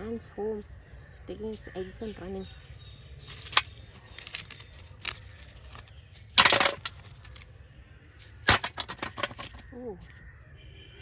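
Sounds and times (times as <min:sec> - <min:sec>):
soil and roots crunching: 0:01.3 - 0:07.6, 0:08.2 - 0:10.3.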